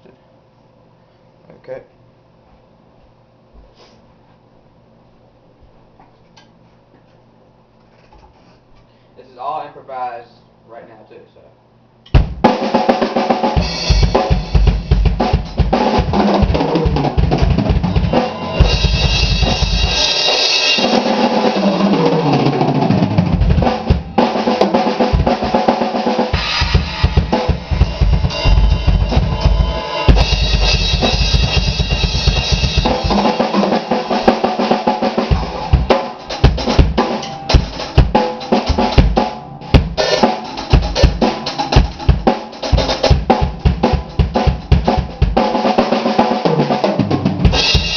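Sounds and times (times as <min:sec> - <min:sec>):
bass drum runs: 0:12.1 - 0:12.6, 0:13.5 - 0:45.4
drum kit solo: 0:12.1 - 0:47.9
crashing cymbals: 0:26.3 - 0:33.5.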